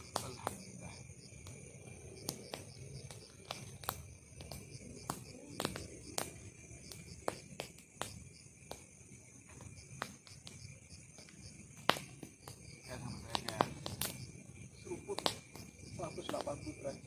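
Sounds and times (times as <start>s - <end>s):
crickets chirping: 0.0s - 17.0s
sharp clicks and snaps: 2.2s - 8.8s, 13.3s - 14.3s.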